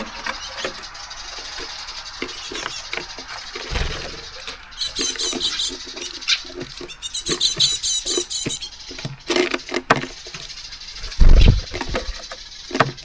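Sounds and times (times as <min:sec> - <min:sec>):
birds pecking and hopping on feeder: 0:00.0 - 0:13.0
high repeated chip calls: 0:00.0 - 0:13.0.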